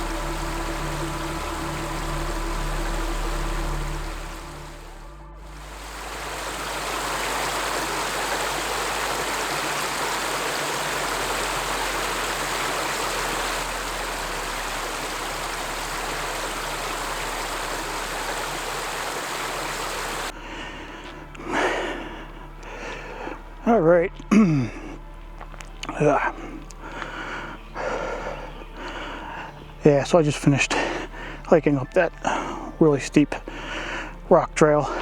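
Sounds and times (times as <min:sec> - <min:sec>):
creek water flowing: 0:00.0 - 0:35.0.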